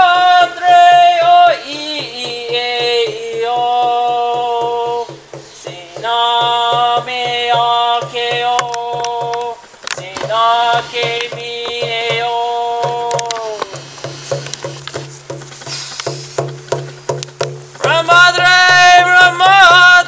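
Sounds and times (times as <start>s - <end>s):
man singing wordless chant: 0.0s - 14.4s, 17.8s - 20.0s
hand drum beat: 0.0s - 20.0s.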